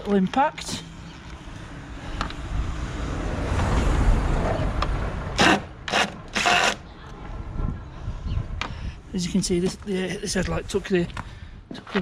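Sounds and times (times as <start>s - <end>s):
cordless impact driver bursts: 5.4s - 6.8s.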